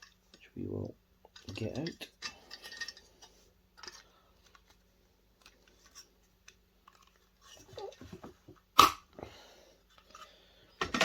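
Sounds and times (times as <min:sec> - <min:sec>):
small clicks and scrapes: 0:01.3 - 0:08.0
plastic snapping: 0:08.8 - 0:09.1.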